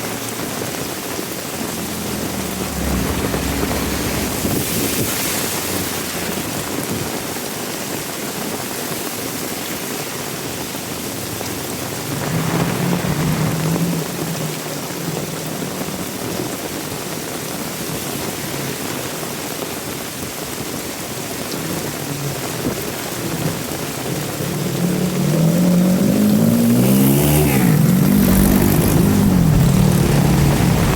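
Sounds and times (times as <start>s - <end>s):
vehicle engine humming: 0.0s - 7.4s, 21.1s - 30.9s
heavy rain falling: 0.0s - 30.9s
engine rising in pitch: 0.5s - 7.0s, 21.8s - 30.9s.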